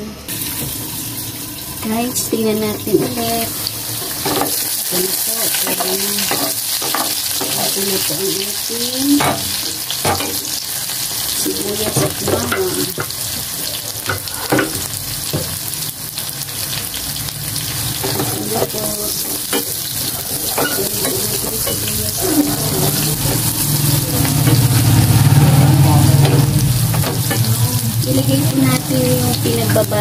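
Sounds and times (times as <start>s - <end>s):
onions sizzling in a frying pan: 0.3s - 30.0s
metal spatula scraping a pan: 18.0s - 23.6s.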